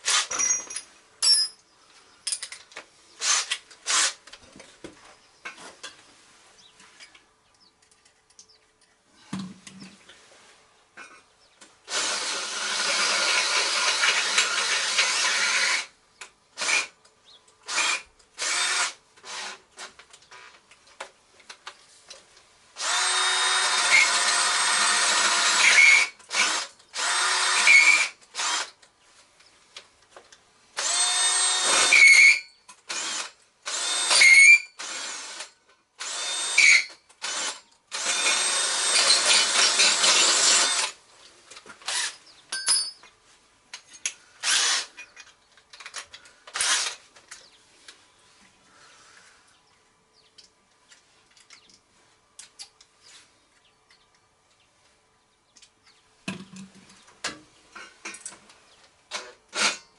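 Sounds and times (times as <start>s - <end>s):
electric drill running: 11.9s - 15.9s, 17.7s - 19.6s, 22.8s - 28.7s, 30.8s - 41.0s, 44.4s - 44.9s, 46.6s - 47.0s.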